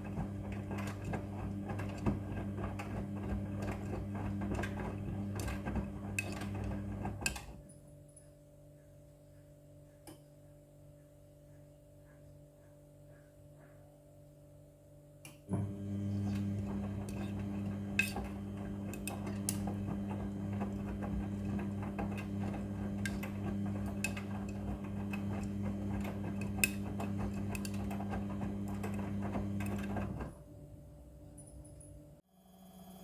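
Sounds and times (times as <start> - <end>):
washing machine humming: 0.0 - 7.7, 15.4 - 32.2.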